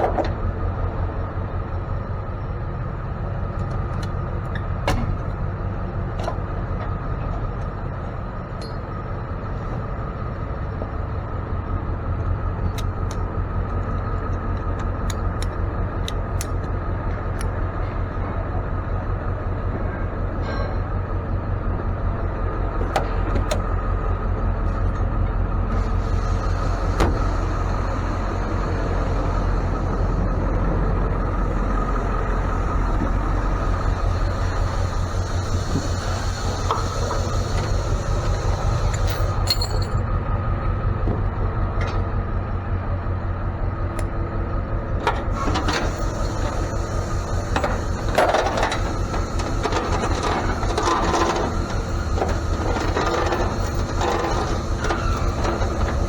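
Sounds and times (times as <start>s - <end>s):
road noise: 0.0s - 56.0s
truck engine drone: 0.0s - 56.0s
rattles and clicks: 32.9s - 40.1s, 47.4s - 56.0s.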